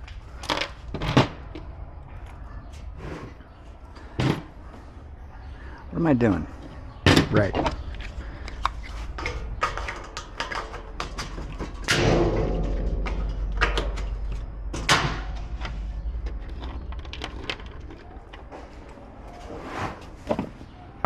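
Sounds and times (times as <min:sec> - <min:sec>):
metal grill parts clattering: 0:09.0 - 0:18.3
loud metal clanks: 0:09.2 - 0:17.2.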